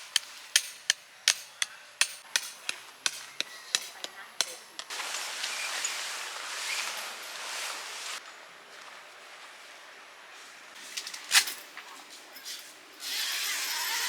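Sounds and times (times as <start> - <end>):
tent pegs being hammered: 0.0 - 5.0.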